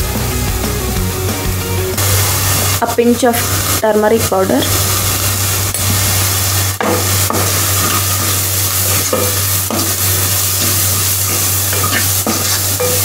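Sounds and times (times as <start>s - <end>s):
onions sizzling in ghee: 2.0s - 13.0s
wooden spatula scraping pan: 7.2s - 13.0s.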